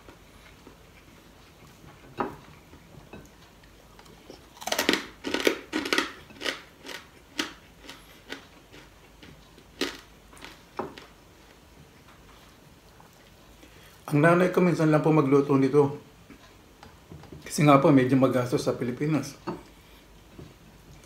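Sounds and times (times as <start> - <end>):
crunching crispy fried pork: 4.3 - 9.2.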